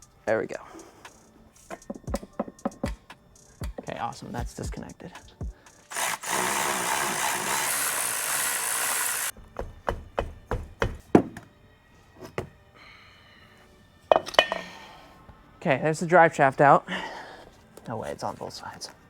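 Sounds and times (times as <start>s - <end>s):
tools and metal parts clunking: 1.6s - 4.3s, 14.1s - 14.8s.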